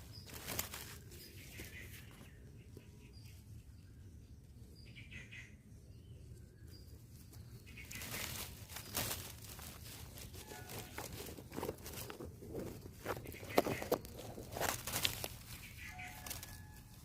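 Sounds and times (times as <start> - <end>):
footsteps rustling in vegetation: 0.0 - 2.4, 7.1 - 17.0
faint bird chirps: 0.0 - 9.3, 12.6 - 17.0.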